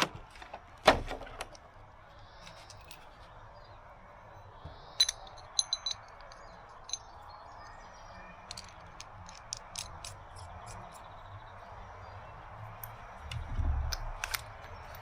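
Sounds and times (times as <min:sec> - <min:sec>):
small metal pieces clinking: 0:05.0 - 0:07.2, 0:08.4 - 0:11.0.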